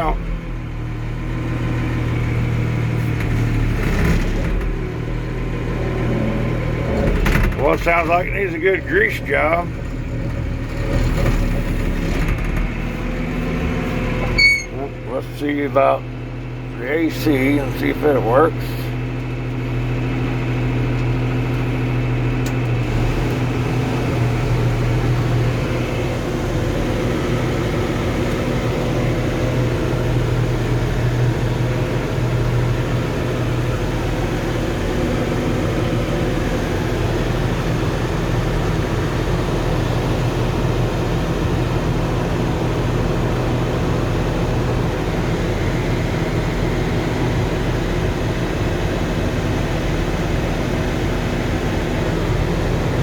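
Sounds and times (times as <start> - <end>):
diesel engine running: 0.0 - 53.0
air-conditioning blower fan: 17.7 - 53.0.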